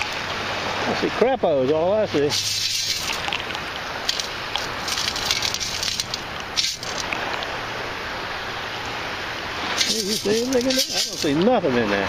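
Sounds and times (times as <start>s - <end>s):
water and sand washing out: 0.0s - 12.0s
shells and gravel rattling in scoop: 2.3s - 7.1s, 9.8s - 11.4s.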